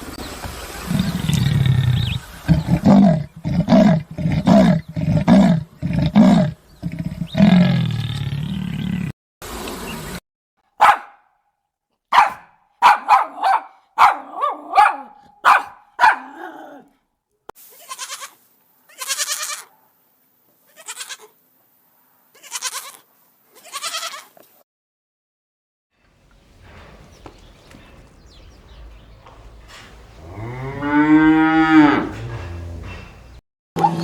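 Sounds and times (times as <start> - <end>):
dog barking: 10.8 - 11.4, 12.1 - 16.9
steady background hiss: 17.6 - 22.4
goat bleating: 17.7 - 19.7, 20.7 - 21.4, 22.3 - 24.4.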